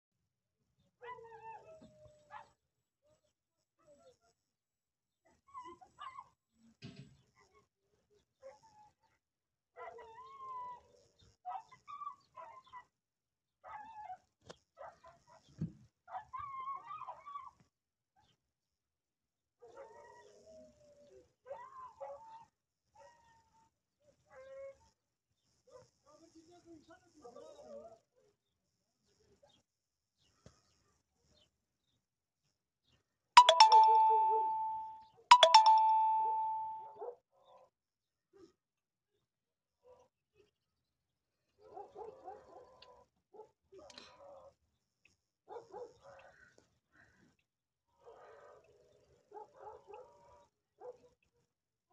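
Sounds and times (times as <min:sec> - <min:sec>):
dogs yelping and whining: 0:09.8 - 0:12.9, 0:16.1 - 0:17.6, 0:19.6 - 0:23.7
bell-like chime: 0:33.4 - 0:36.9.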